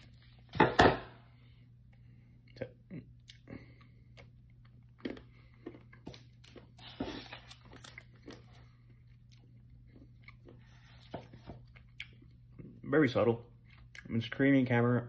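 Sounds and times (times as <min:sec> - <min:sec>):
person chewing chocolate: 0:02.4 - 0:12.8, 0:13.5 - 0:14.2.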